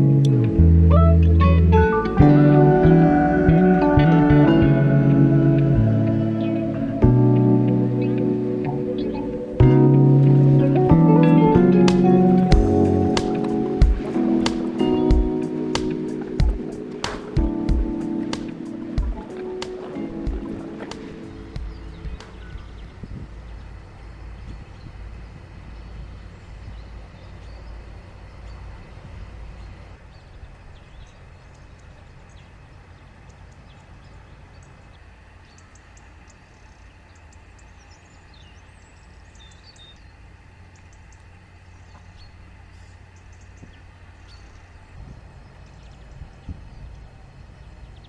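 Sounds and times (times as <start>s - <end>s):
low rumble: 0.0s - 23.8s.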